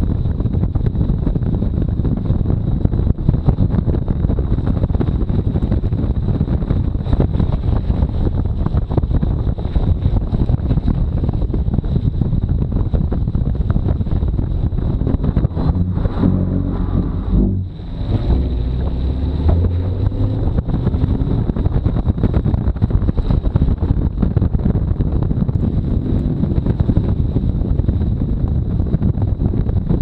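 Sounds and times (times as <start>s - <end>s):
wind buffeting microphone: 0.0s - 30.0s
car engine revving hard: 14.9s - 21.7s.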